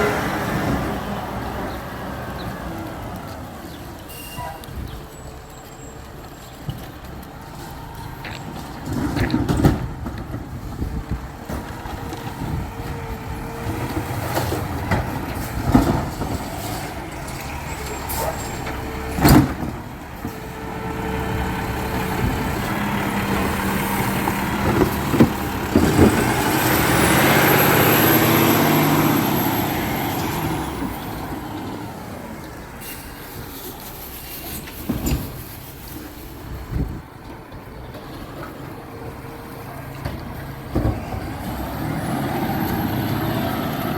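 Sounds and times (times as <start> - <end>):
garbage truck engine running: 4.7 - 43.9.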